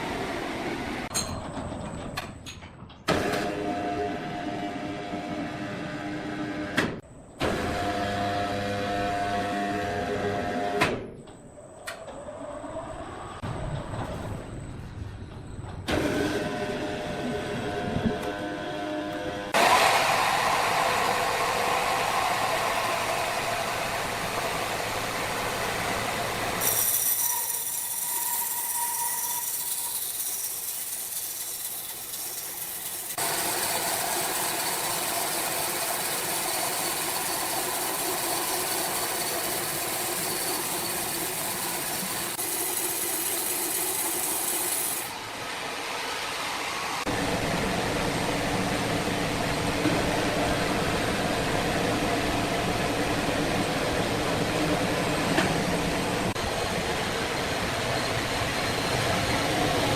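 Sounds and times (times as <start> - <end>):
sawmill machinery running: 15.9 - 59.9.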